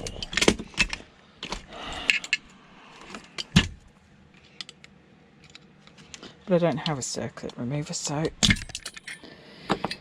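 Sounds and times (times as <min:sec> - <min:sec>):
metal tools clinking and knocking: 0:08.4 - 0:10.0.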